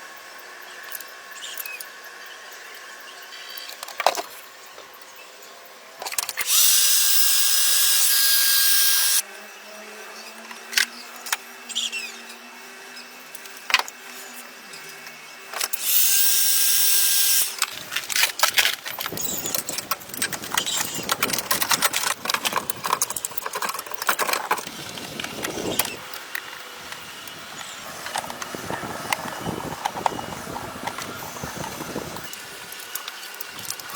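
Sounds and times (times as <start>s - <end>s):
handheld power tool running: 6.4s - 9.2s, 15.6s - 33.9s
rapid clicking and scraping: 17.4s - 33.9s.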